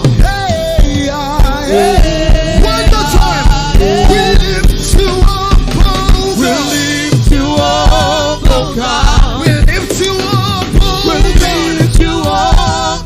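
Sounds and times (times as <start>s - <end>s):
keyboards: 0.0s - 13.0s
person singing: 0.0s - 13.0s
steady drum beat: 0.0s - 13.0s.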